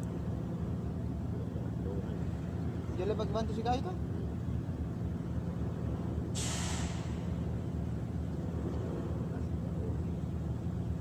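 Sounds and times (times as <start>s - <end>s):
engine humming: 0.0s - 11.0s
sudden hiss: 6.4s - 7.4s.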